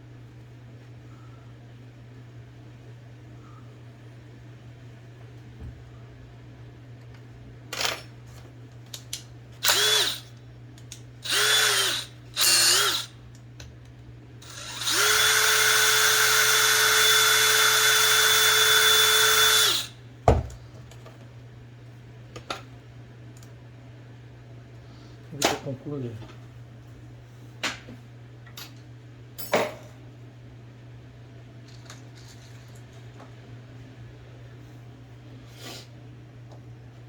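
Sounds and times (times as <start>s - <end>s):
small electric drill running: 9.6s - 10.3s, 11.2s - 13.2s, 14.4s - 20.0s.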